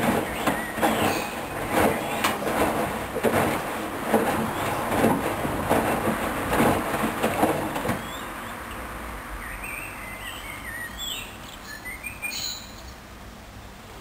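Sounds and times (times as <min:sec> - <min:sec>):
birds chirping: 0:00.0 - 0:02.4, 0:07.9 - 0:13.0.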